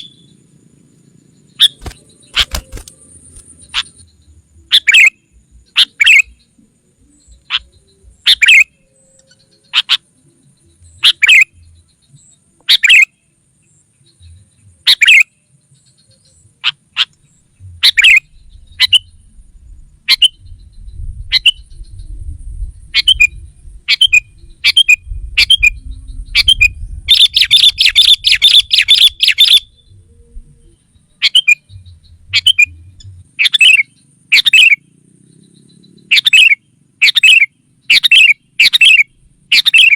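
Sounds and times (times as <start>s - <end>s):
bulbul calling: 0.0s - 0.4s, 1.0s - 22.2s, 22.8s - 39.9s
rapid harsh bird chattering: 0.0s - 0.4s, 1.3s - 8.8s, 9.4s - 10.2s, 10.9s - 13.2s, 14.8s - 19.2s, 22.9s - 25.7s, 26.3s - 30.0s, 30.7s - 39.9s.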